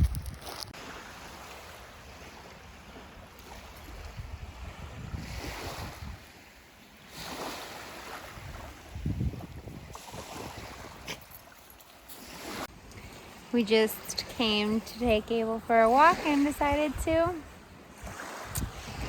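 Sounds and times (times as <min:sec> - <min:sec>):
wind on microphone: 0:00.0 - 0:00.8, 0:03.4 - 0:06.4, 0:07.2 - 0:11.3, 0:14.1 - 0:19.0
ocean waves washing on beach: 0:00.0 - 0:19.0.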